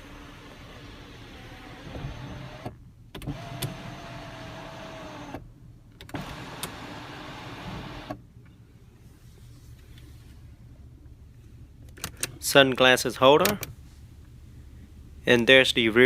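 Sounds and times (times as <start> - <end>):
sunroof motor whine: 0.0 - 5.4.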